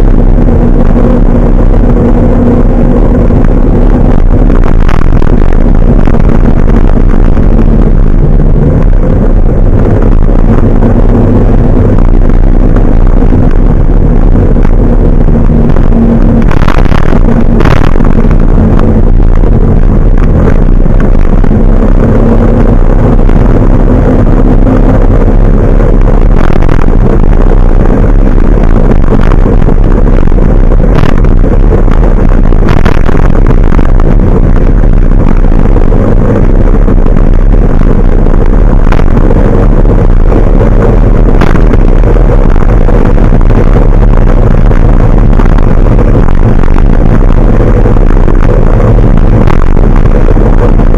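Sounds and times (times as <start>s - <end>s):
truck engine droning: 0.0s - 50.9s.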